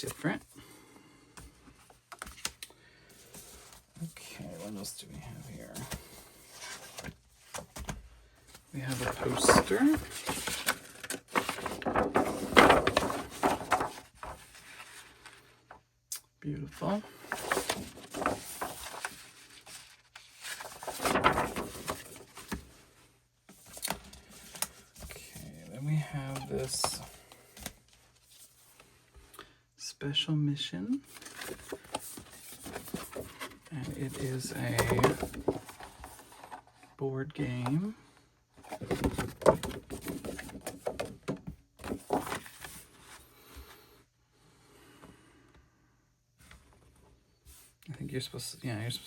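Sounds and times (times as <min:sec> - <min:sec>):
paper packaging rustling: 0:01.9 - 0:15.8, 0:16.8 - 0:22.9, 0:23.5 - 0:28.8, 0:31.0 - 0:36.8, 0:38.6 - 0:43.2.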